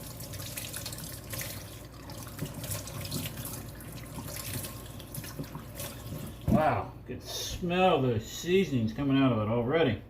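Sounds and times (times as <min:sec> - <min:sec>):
faucet water splashing into sink: 0:00.0 - 0:06.6.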